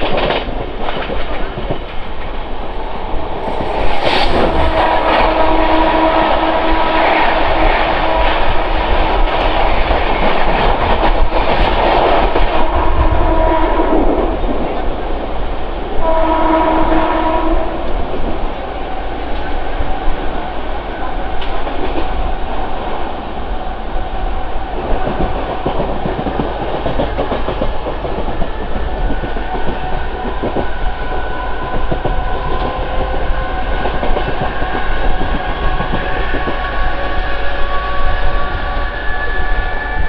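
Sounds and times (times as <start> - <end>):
train wheels rumbling on rails: 0.0 - 40.0
train horn: 3.8 - 9.3, 12.6 - 14.4, 16.0 - 18.0, 29.6 - 40.0.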